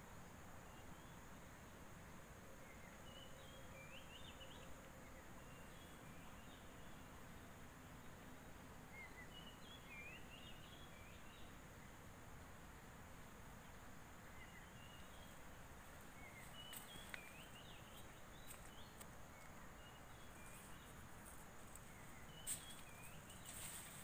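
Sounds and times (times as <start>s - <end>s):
bird chirps: 16.2s - 21.0s, 21.7s - 24.0s.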